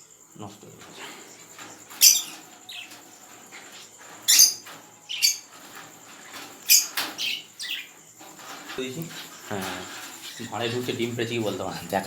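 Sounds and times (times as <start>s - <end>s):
shrill bird calls: 1.9s - 3.2s, 4.2s - 5.6s, 6.2s - 8.0s.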